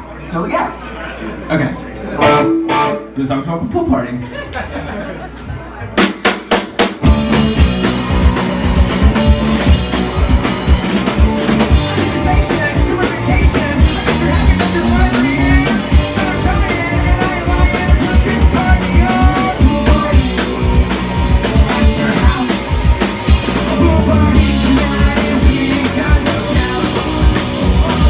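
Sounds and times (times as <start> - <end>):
drum kit beating: 2.2 - 3.1, 5.9 - 28.0
guitars: 2.2 - 3.2, 7.0 - 28.0
live rock band playing: 2.2 - 3.2, 5.8 - 28.0
person singing: 11.4 - 28.0.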